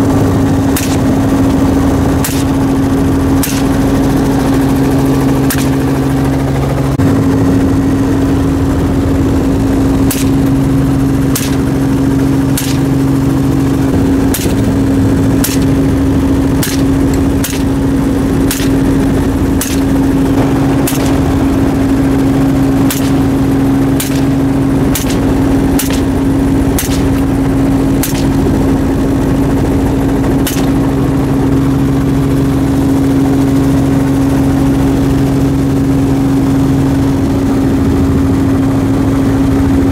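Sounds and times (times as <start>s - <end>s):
helicopter drone: 0.0s - 39.9s
rifle shots: 0.7s - 1.2s, 2.2s - 2.6s, 3.4s - 3.9s, 5.5s - 5.8s, 10.0s - 10.6s, 11.3s - 11.8s, 12.5s - 13.0s, 14.2s - 27.4s, 28.0s - 28.6s, 30.4s - 30.8s.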